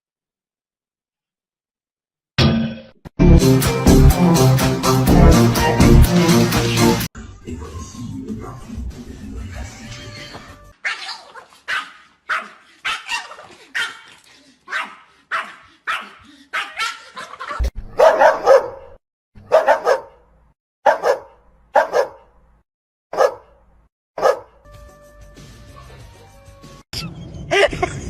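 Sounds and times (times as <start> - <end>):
dog barking: 10.8 - 22.4, 23.1 - 24.6.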